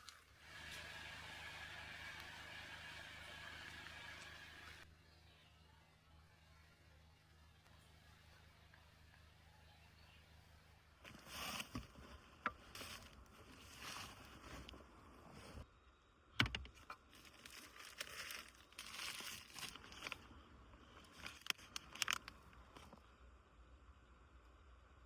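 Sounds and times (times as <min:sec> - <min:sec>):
crinkling and rustling: 0:11.0 - 0:15.6, 0:16.6 - 0:23.1
small clicks: 0:21.1 - 0:23.0.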